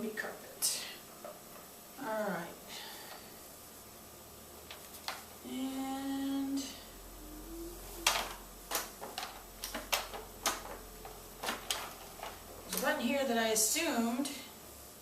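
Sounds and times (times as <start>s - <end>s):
woman humming: 5.4s - 8.4s.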